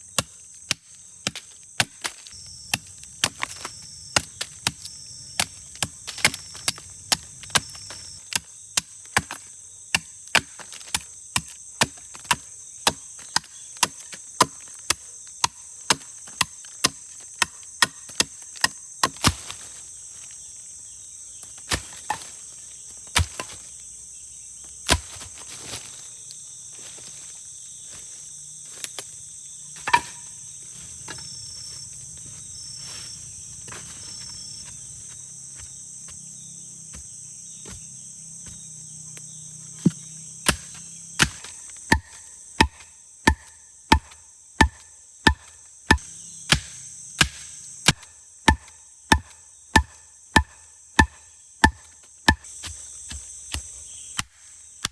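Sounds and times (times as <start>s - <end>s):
insects chirring: 0.0s - 54.9s
wood being chopped: 0.1s - 19.7s, 21.4s - 22.4s, 23.0s - 23.7s, 24.8s - 25.8s, 29.8s - 30.4s, 39.7s - 54.9s.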